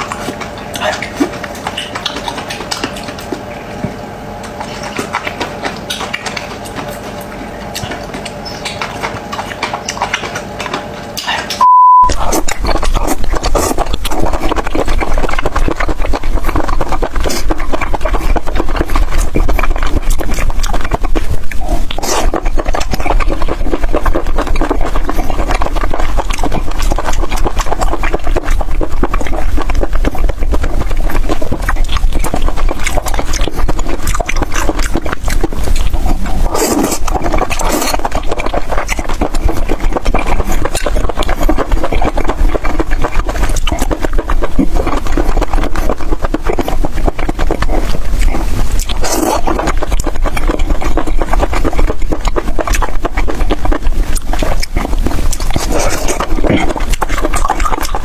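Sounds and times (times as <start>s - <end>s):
wet chewing and slurping: 0.0s - 58.0s.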